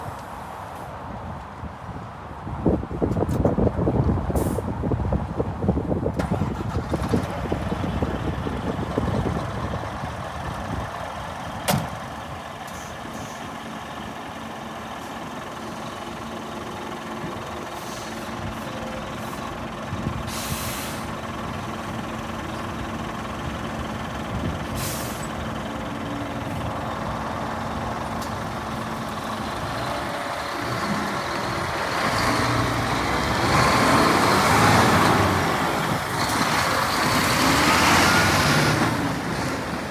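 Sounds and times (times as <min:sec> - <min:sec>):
truck diesel engine idling: 0:06.2 - 0:39.9
compressed air hisses: 0:20.3 - 0:21.1.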